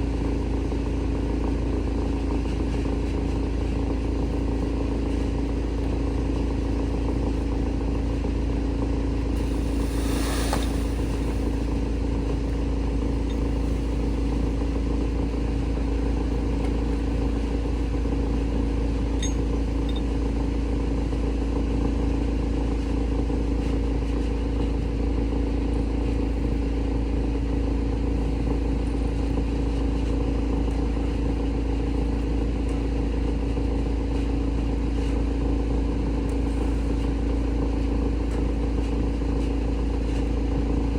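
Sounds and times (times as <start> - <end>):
wood shredder droning: 9.0 - 20.0
short hiss: 9.4 - 12.0.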